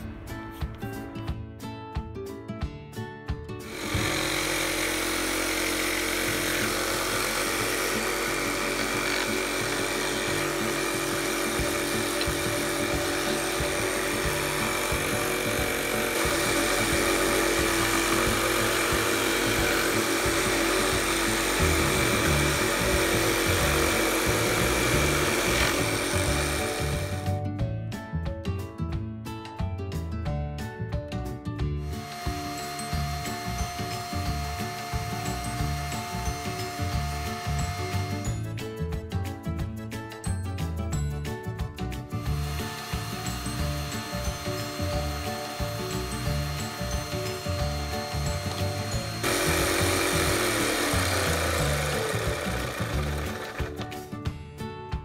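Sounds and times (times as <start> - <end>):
power tool running: 3.7 - 27.4, 31.8 - 38.4, 42.1 - 53.9.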